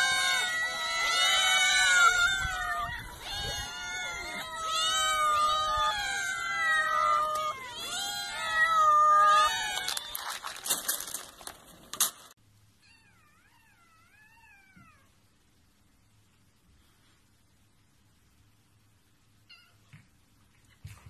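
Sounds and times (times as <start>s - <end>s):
cats meowing: 0.0s - 11.3s, 12.8s - 15.2s
dry cat food scattering on wood: 9.3s - 12.3s.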